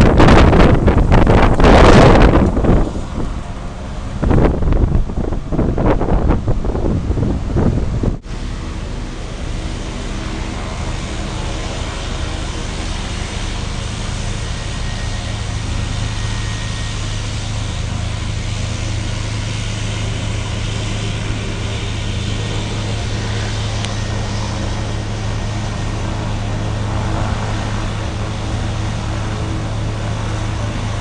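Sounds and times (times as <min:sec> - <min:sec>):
steady engine drone: 0:00.0 - 0:31.0.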